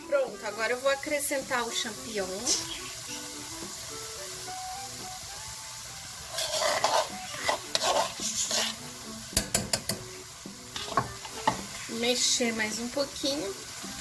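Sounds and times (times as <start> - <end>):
onions sizzling in a pot: 0.0 - 14.0
spoon stirring and scraping pan: 6.2 - 12.3
utensil knocking against pot: 9.3 - 10.1.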